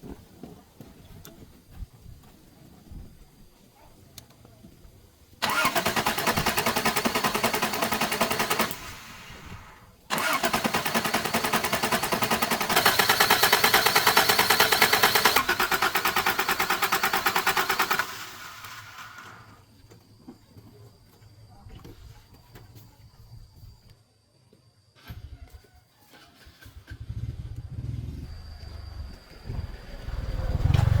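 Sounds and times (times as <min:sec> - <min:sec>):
engine cranking by starter motor: 0:05.4 - 0:19.7, 0:26.0 - 0:31.0.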